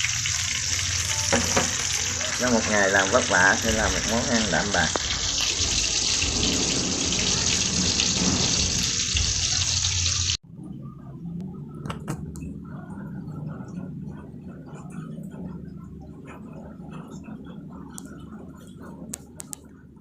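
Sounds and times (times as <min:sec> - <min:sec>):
fish sizzling in hot oil: 0:00.0 - 0:10.4.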